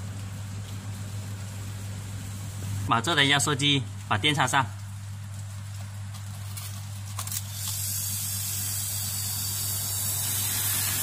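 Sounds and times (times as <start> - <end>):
compressor running with low hum: 0.0 - 11.0
air hissing from tube: 7.5 - 11.0.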